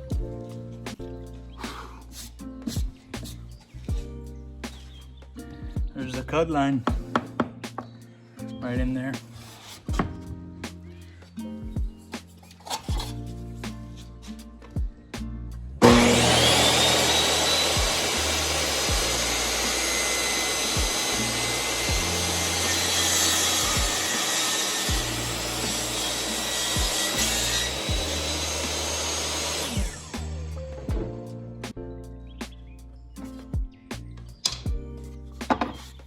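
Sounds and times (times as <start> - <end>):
background music: 0.0 - 36.0
saw cutting wood board: 9.2 - 10.1, 15.8 - 30.6
table saw whining: 15.8 - 30.6.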